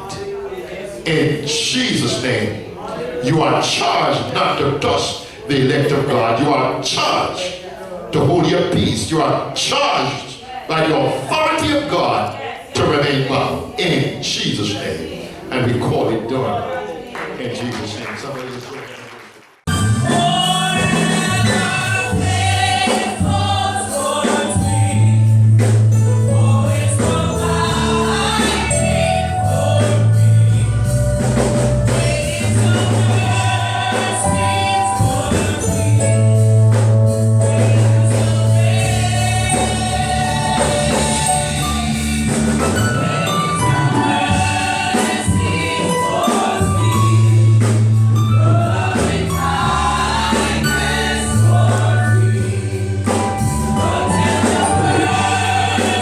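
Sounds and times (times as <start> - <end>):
choir singing gospel: 0.0 - 18.3, 19.6 - 56.0
percussion: 19.6 - 56.0
bass line: 19.7 - 23.8, 24.5 - 45.8, 46.6 - 56.0.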